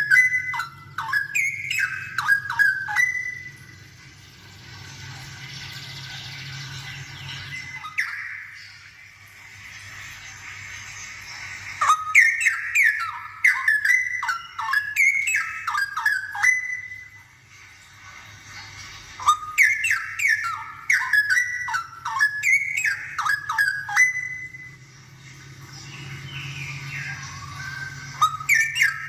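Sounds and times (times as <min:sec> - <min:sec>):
bird singing whistled phrases: 0:00.0 - 0:03.8, 0:06.5 - 0:08.9, 0:11.8 - 0:17.3, 0:19.2 - 0:24.8, 0:26.0 - 0:29.0.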